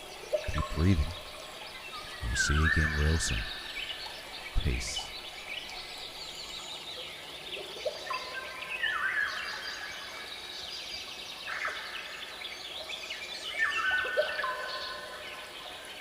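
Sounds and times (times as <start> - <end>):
birds chirping and singing: 0.0 - 6.8
faint background hiss: 0.0 - 16.0.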